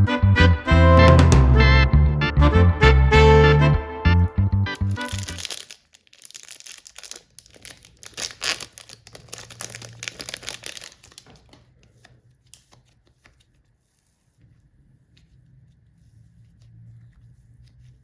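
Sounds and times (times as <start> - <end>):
slime crackling and crinkling: 4.8 - 11.8.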